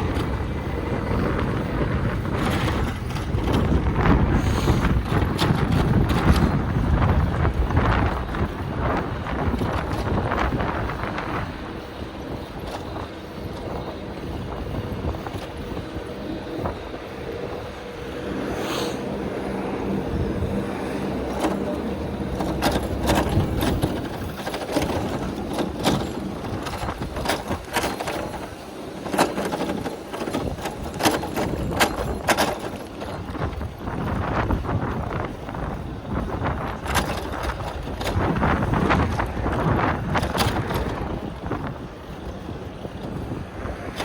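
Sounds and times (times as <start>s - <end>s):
city traffic rumble: 0.0s - 44.0s
passing motor vehicle hum: 0.0s - 44.0s.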